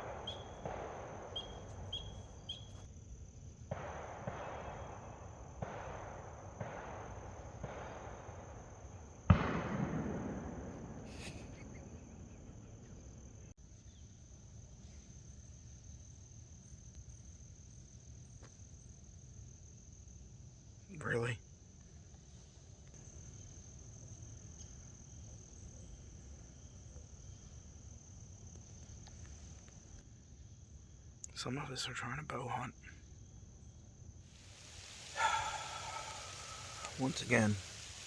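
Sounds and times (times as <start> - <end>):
distant gunshot with echo: 0.0 - 2.8, 3.7 - 12.2
insect trill: 0.0 - 9.4, 11.0 - 38.0
rustling: 34.4 - 38.0.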